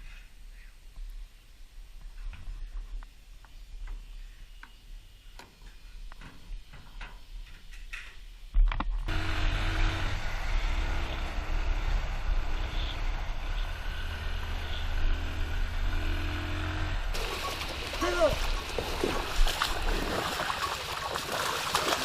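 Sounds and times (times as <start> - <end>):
engine humming: 9.1 - 22.0.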